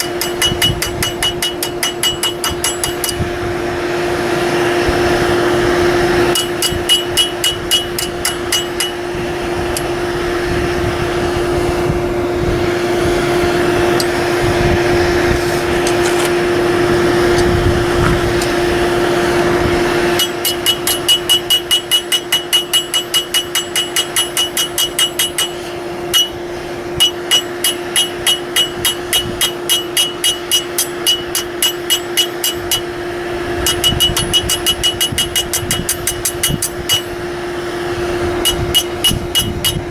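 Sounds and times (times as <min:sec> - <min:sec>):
hammer striking steel on anvil: 0:00.0 - 0:03.4, 0:06.3 - 0:10.0, 0:20.1 - 0:37.4, 0:38.3 - 0:39.9
constant hum: 0:00.0 - 0:39.9.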